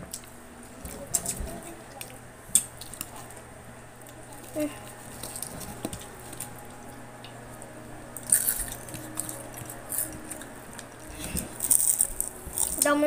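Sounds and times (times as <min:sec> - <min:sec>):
chewing crispy food: 0:00.0 - 0:13.0.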